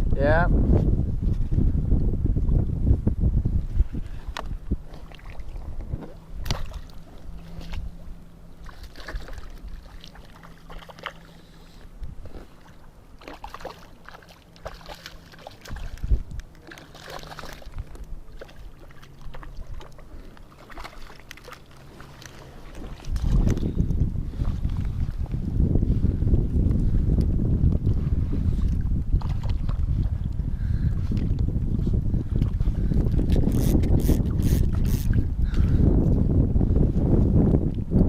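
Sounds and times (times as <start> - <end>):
knocks and clicks in a boat: 4.3 - 7.9, 13.2 - 25.4, 28.6 - 36.2.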